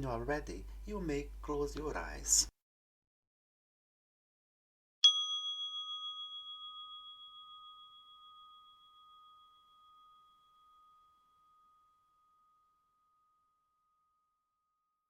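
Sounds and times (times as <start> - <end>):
meditation bell ringing: 5.0 - 14.6.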